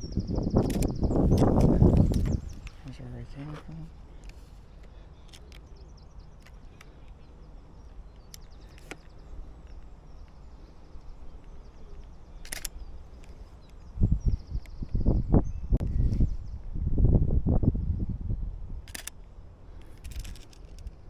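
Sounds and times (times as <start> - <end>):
faint songbird trills: 0.0 - 16.7
sharp clicks: 0.6 - 2.8, 8.1 - 10.4, 11.4 - 13.9, 18.9 - 21.0.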